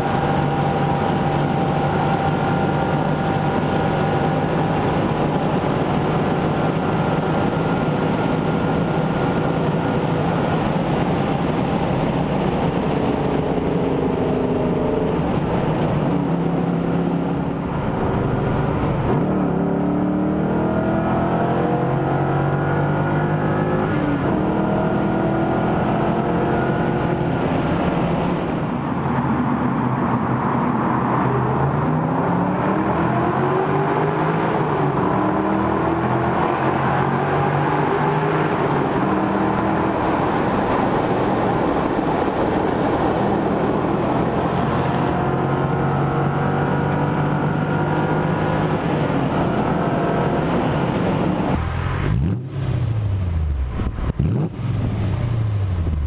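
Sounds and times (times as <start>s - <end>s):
road and wind noise: 0.0s - 56.0s
car engine revving hard: 18.0s - 28.1s, 31.4s - 55.7s.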